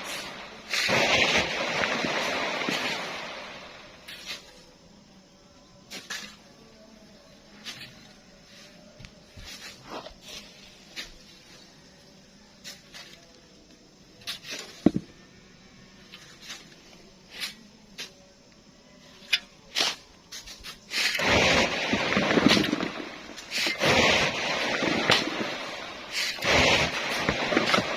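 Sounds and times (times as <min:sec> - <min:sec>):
sand pouring: 0:00.0 - 0:04.7, 0:19.4 - 0:27.9
shovels scraping sand: 0:00.0 - 0:04.7, 0:05.9 - 0:06.5, 0:07.6 - 0:11.7, 0:12.6 - 0:13.3, 0:14.2 - 0:15.0, 0:16.1 - 0:18.2, 0:19.1 - 0:27.9.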